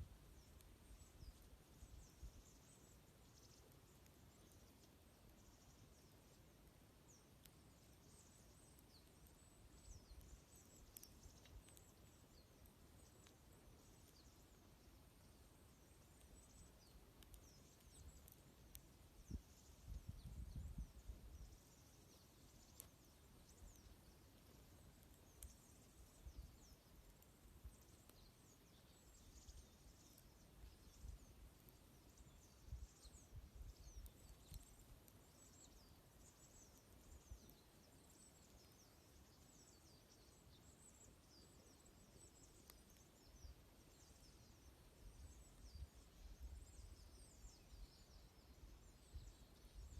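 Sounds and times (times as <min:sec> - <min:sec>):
small birds chirping: 0:00.0 - 0:49.9
wood fire snapping: 0:08.7 - 0:14.4, 0:16.0 - 0:20.0, 0:22.6 - 0:26.2, 0:34.0 - 0:35.2.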